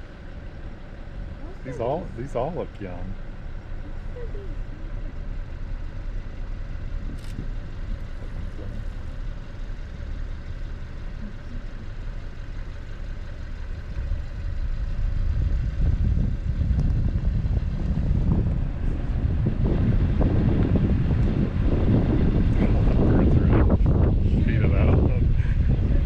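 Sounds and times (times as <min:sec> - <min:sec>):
car engine idling: 0:00.0 - 0:26.0
wind on microphone: 0:13.8 - 0:26.0.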